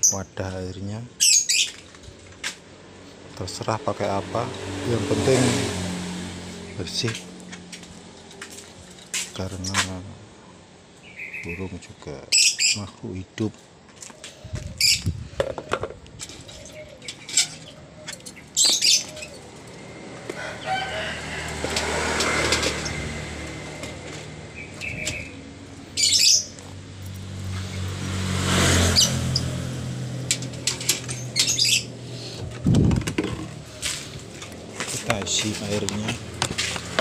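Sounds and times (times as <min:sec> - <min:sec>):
bird chirps: 0:01.2 - 0:01.8, 0:11.0 - 0:12.9, 0:16.4 - 0:19.6, 0:24.6 - 0:26.8, 0:31.1 - 0:32.4.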